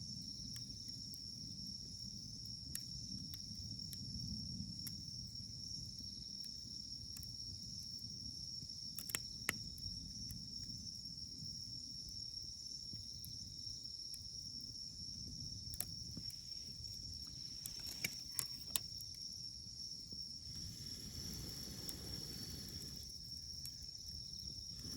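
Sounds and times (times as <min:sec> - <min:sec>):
campfire wood burning: 0:00.1 - 0:24.9
insects chirring: 0:00.1 - 0:24.9
fire crackling pops: 0:08.8 - 0:10.8, 0:14.1 - 0:24.9.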